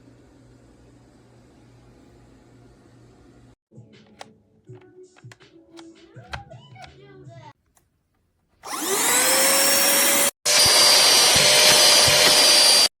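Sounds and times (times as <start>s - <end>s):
handheld vacuum running: 8.6s - 12.9s.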